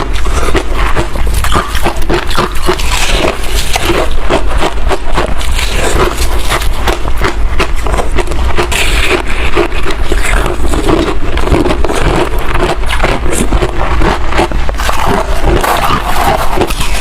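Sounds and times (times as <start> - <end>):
frost being crunched and chewed: 0.0 - 17.0.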